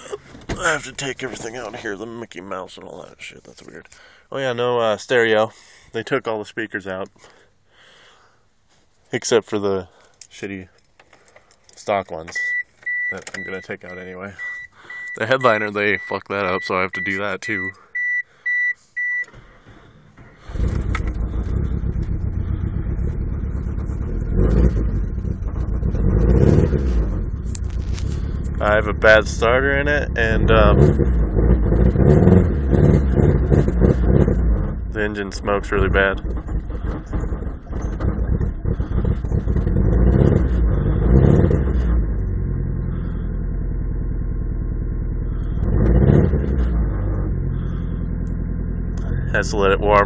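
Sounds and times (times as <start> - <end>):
car engine starting and revving: 19.2 - 50.0.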